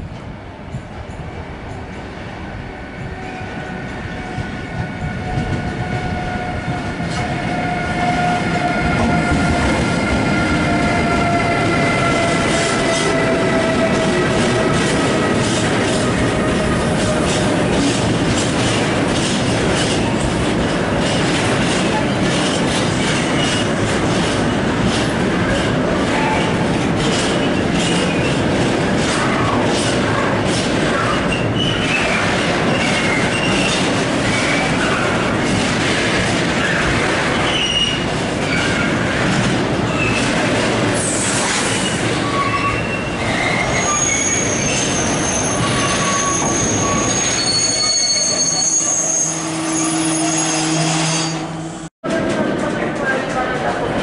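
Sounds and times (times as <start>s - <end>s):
train wheels rumbling on rail: 0.0s - 54.0s
wheel squeals: 41.8s - 51.5s.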